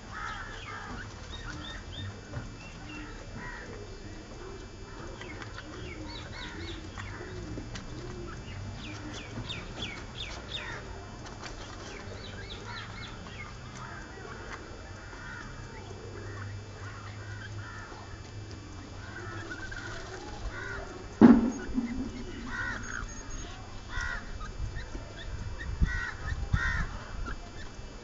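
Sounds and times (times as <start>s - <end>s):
bird cooing: 0.0s - 27.8s
low steady hum: 0.0s - 28.0s
high downward-sliding bird calls: 5.1s - 7.5s, 18.8s - 25.3s.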